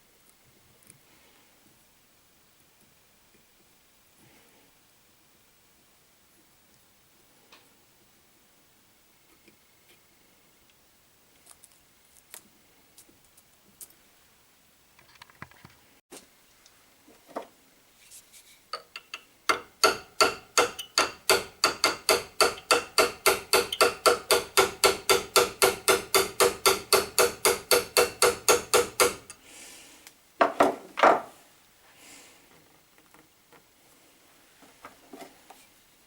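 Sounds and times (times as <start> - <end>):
hammer striking ringing metal: 19.0 - 29.4.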